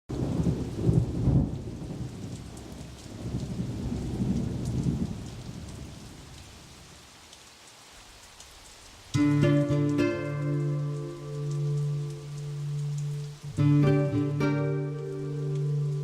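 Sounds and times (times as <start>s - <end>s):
steady rain: 0.1s - 16.0s
thunder rumbling: 0.2s - 6.0s.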